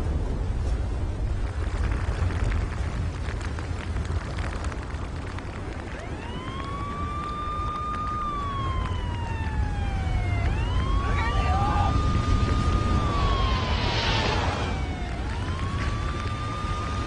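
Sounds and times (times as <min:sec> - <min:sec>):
deep rumbling with crackling: 0:00.0 - 0:17.0
warning siren winding: 0:05.9 - 0:17.0.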